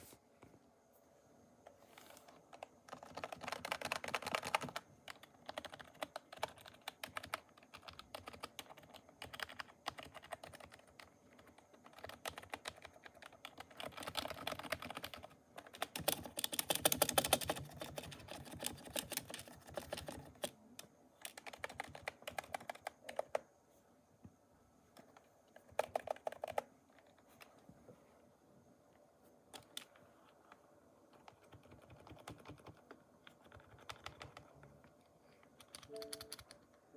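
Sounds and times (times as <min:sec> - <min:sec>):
mechanical keyboard typing: 0:02.5 - 0:23.4, 0:25.0 - 0:27.5, 0:29.5 - 0:30.0, 0:31.2 - 0:36.8.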